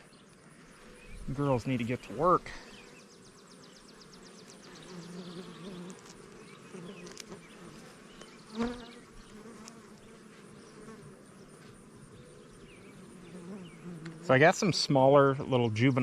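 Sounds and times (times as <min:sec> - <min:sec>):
honeybees buzzing: 0:00.0 - 0:15.2.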